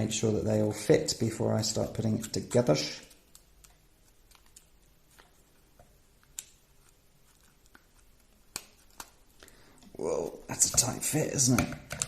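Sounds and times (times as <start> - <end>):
plastic parts clicking and tapping: 10.6 - 12.0.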